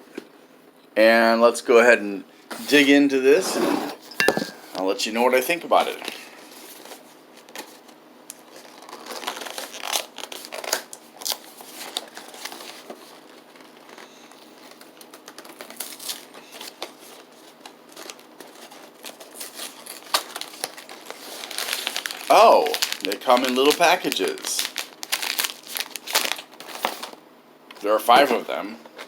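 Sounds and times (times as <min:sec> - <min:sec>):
snack packaging crinkling: 0:06.8 - 0:27.2
packaging tearing: 0:08.4 - 0:14.0, 0:14.6 - 0:17.3, 0:17.9 - 0:27.2.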